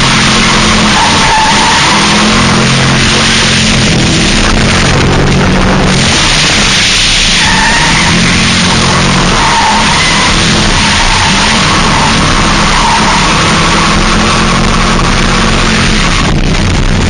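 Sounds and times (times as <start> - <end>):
high tyre squeal: 0.0 - 16.8
car engine at high revs: 0.0 - 17.0
tyres skidding: 0.0 - 17.0.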